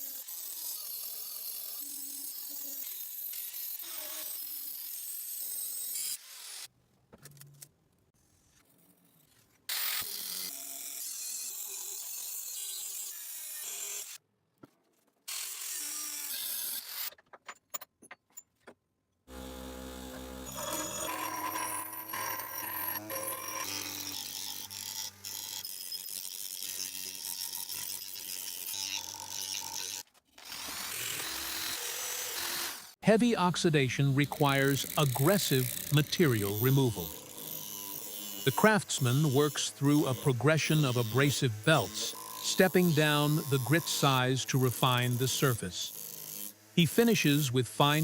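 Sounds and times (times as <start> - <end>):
power tool humming: 19.3 - 27.9, 34.1 - 48.0
rasping scraping on metal: 20.5 - 25.5.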